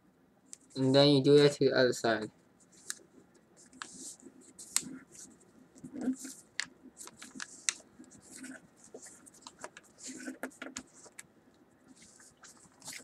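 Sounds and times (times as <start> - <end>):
paper crinkling and crackling: 3.6 - 11.3, 11.9 - 13.0.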